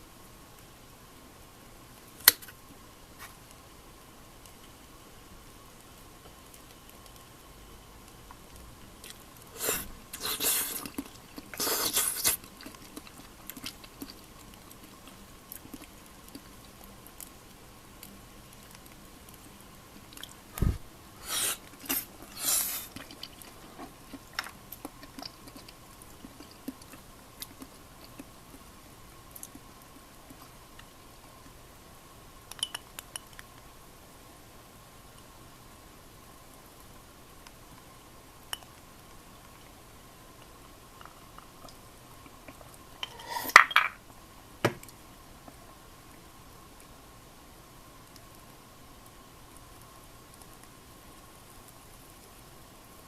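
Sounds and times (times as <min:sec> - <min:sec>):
person chewing: 0:09.0 - 0:16.9, 0:20.2 - 0:28.6.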